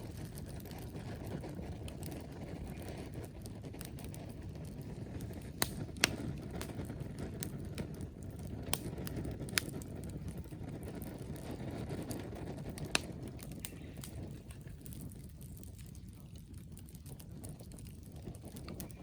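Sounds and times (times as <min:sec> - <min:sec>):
fire crackling pops: 0:00.0 - 0:19.0
wood fire burning: 0:00.0 - 0:19.0.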